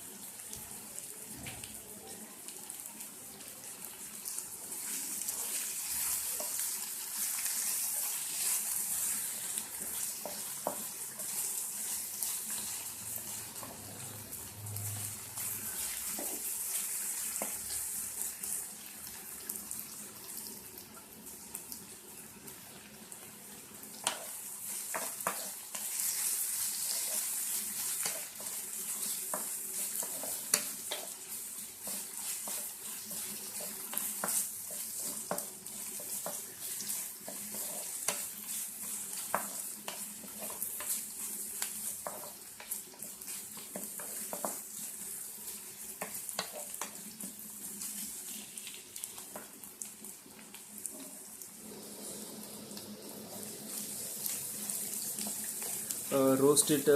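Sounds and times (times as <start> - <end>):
onions sizzling in hot oil: 0.0 - 56.9
spatula scraping a pan: 24.0 - 45.0.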